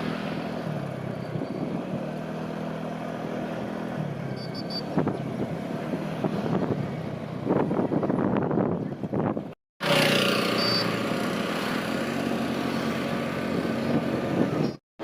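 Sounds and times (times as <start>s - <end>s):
vehicle engine running: 0.0s - 14.8s
short high beeps: 10.5s - 10.9s.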